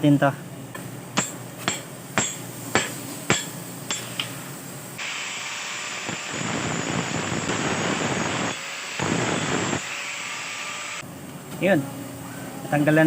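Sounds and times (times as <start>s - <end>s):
angle grinder cutting steel: 5.0s - 11.0s.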